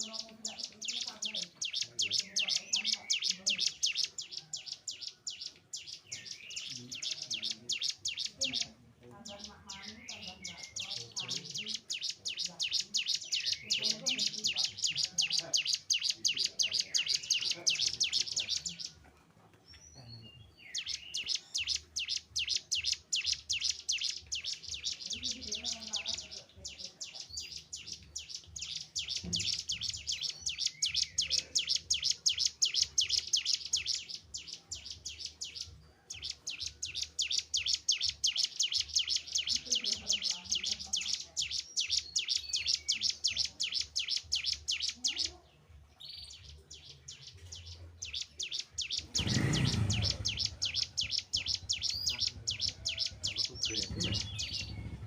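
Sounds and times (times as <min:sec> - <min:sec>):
bird trilling chirps: 0:00.0 - 0:19.0, 0:19.7 - 0:45.4, 0:46.0 - 0:55.0.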